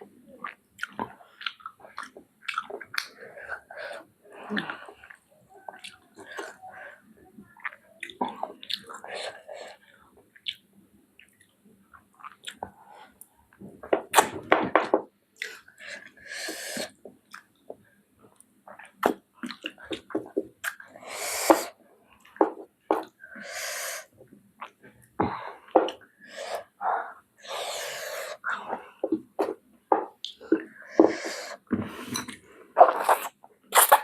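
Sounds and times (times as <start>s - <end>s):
lip smacks and mouth clicks: 0.4s - 3.2s, 10.4s - 10.6s, 18.4s - 20.8s
sharp hissing breaths: 15.8s - 16.9s, 21.0s - 21.8s, 23.2s - 24.1s, 25.4s - 28.8s, 30.8s - 32.2s.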